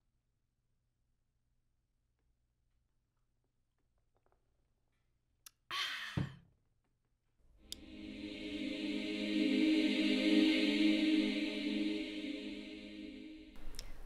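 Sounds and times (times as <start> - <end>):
choir chord sung: 7.6 - 14.0.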